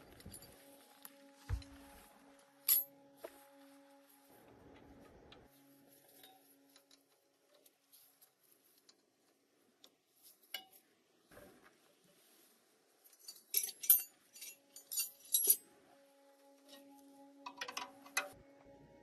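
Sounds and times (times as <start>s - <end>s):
metal tools clinking: 2.7s - 2.9s, 13.1s - 15.6s.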